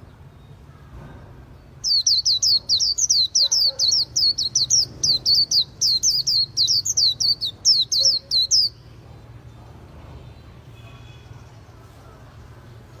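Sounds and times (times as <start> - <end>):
bird chirping high falling notes: 1.9 - 8.7.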